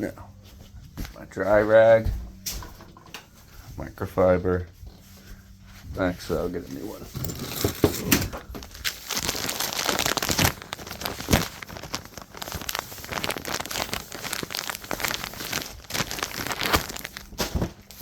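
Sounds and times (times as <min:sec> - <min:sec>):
cloth crinkling and rustling: 0:06.0 - 0:18.0.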